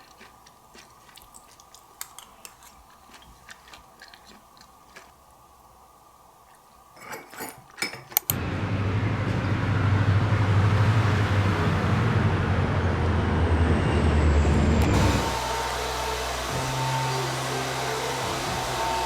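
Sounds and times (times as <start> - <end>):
hair dryer running: 14.8 - 19.0.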